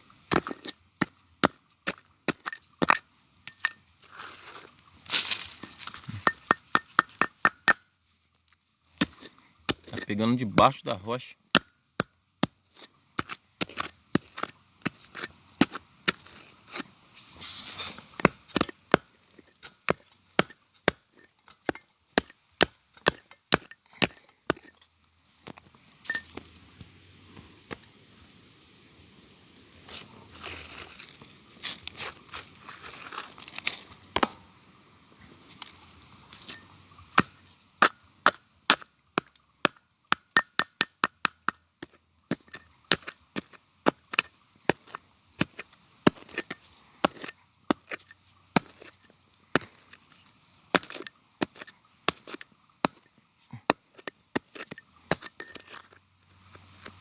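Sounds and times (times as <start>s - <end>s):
scraping among stones: 0.0s - 7.8s, 8.4s - 11.6s, 12.4s - 28.0s, 29.7s - 34.3s, 35.2s - 57.0s
metal tool striking rock: 0.1s - 3.9s, 5.2s - 7.9s, 8.9s - 16.9s, 18.0s - 24.8s, 26.0s - 26.5s, 34.2s - 34.5s, 35.7s - 57.0s.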